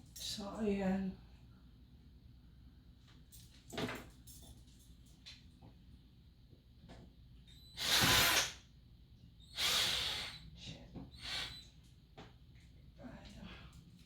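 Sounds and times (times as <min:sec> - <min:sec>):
cordless drill running: 0:07.8 - 0:08.5.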